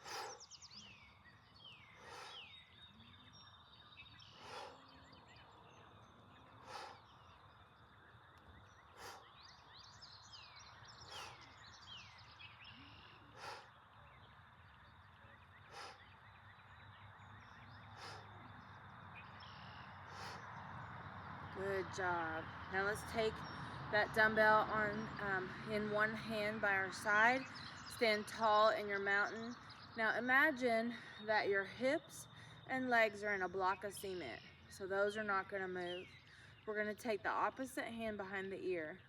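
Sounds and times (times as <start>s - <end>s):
birds chirping: 0.0s - 39.0s
sharp exhales of breath: 17.9s - 18.3s.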